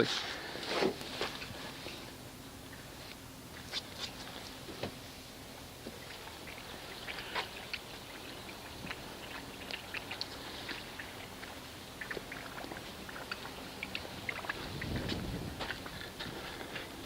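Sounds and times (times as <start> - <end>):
low rumble: 14.3 - 16.9.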